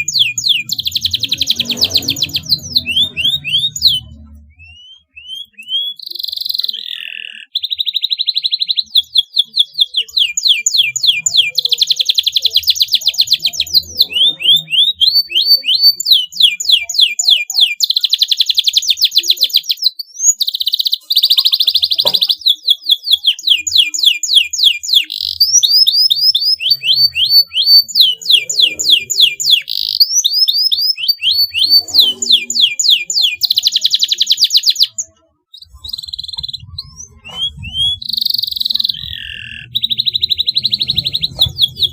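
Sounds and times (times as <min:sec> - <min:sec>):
canary singing trills: 0:00.0 - 0:41.9.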